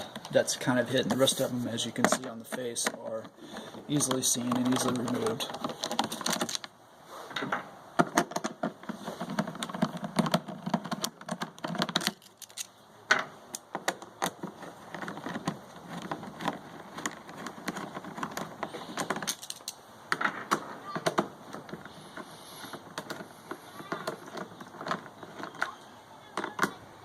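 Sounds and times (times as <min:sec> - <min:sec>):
screws and tool handled: 0:01.0 - 0:06.7, 0:08.3 - 0:26.8
screwdriver clicking and rattling: 0:10.2 - 0:12.7, 0:13.5 - 0:19.8.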